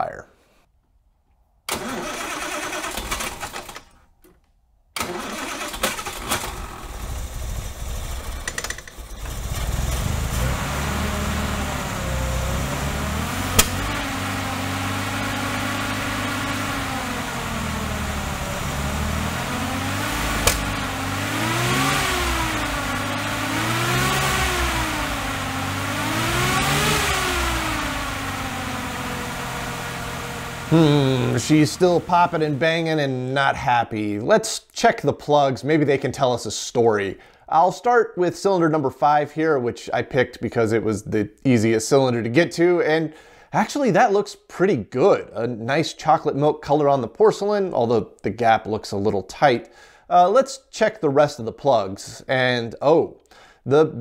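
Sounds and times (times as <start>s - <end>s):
engine revving: 1.7s - 3.6s, 5.0s - 32.6s
engine cranking on starter: 1.7s - 3.9s, 5.0s - 32.4s
engine running roughly: 5.1s - 32.4s
engine pops: 13.2s - 14.4s, 19.2s - 23.7s.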